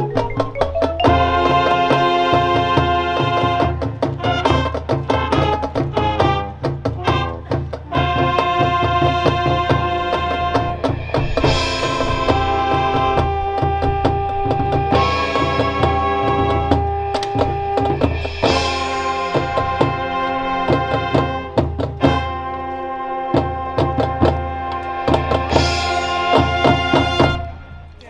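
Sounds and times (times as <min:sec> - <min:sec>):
steady drum beat: 0:00.0 - 0:27.6
brass chords: 0:00.0 - 0:28.0
cymbal crash: 0:10.7 - 0:13.5, 0:17.3 - 0:21.3.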